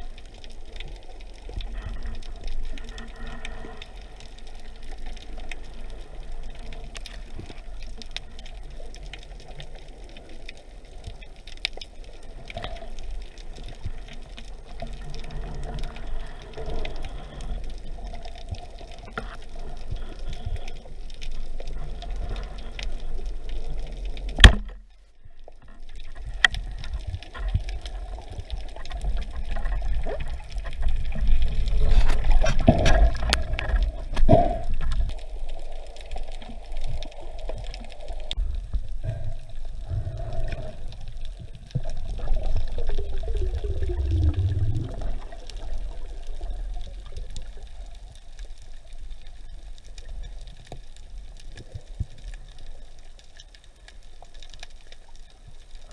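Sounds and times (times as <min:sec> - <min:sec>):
underwater rumble and gurgling: 0:00.0 - 0:55.9
sharp crack: 0:24.3 - 0:24.8.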